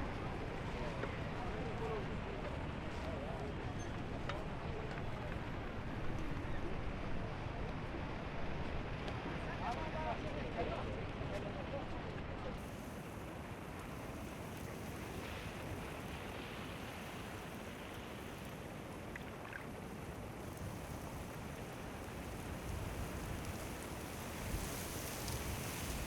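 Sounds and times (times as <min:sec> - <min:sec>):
wind rumbling on microphone: 0:00.0 - 0:26.0
sea waves washing: 0:12.6 - 0:26.0.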